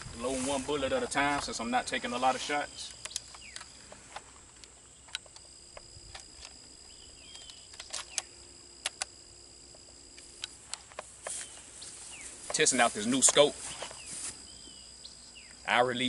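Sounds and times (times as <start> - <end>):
rifle clicking while being loaded: 2.8 - 6.6, 7.2 - 9.2.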